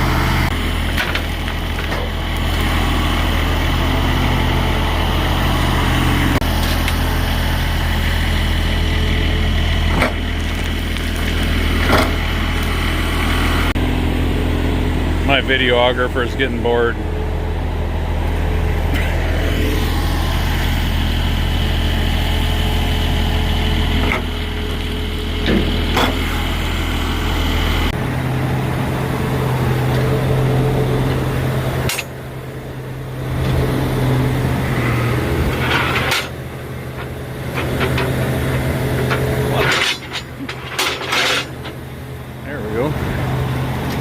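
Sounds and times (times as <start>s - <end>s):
engine humming: 0.0s - 44.0s
heavy diesel engines running: 0.0s - 44.0s
knocks and clanks: 35.5s - 41.8s.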